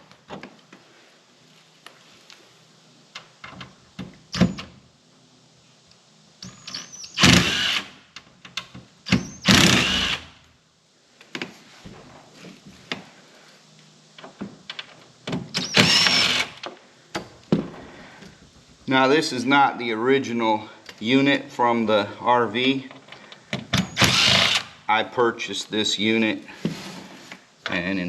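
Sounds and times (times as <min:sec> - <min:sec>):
impact driver bursts: 0:06.4 - 0:08.0, 0:09.1 - 0:10.4, 0:15.5 - 0:16.7, 0:23.8 - 0:24.9.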